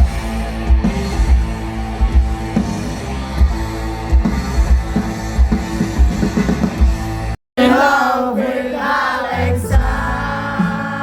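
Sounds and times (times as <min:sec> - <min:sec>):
bass guitar: 0:00.0 - 0:07.4, 0:09.4 - 0:11.0
drum kit: 0:00.0 - 0:07.4, 0:09.7 - 0:11.0
electric guitar: 0:00.0 - 0:07.4.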